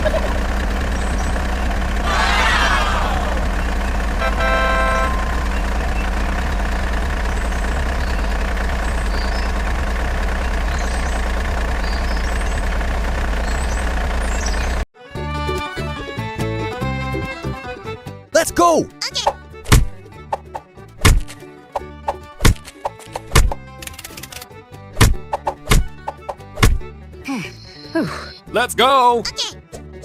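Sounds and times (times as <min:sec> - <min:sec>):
truck engine rumbling: 0:00.0 - 0:28.8
horn blast: 0:02.0 - 0:06.3
music: 0:15.0 - 0:30.0.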